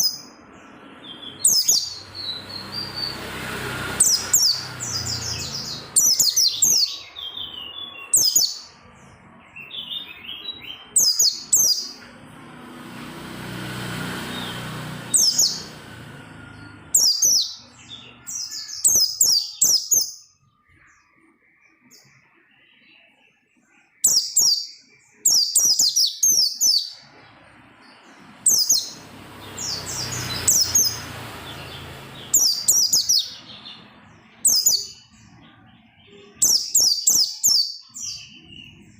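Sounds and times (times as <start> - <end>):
bird chirping high-pitched: 0.0 - 12.4, 14.2 - 38.9.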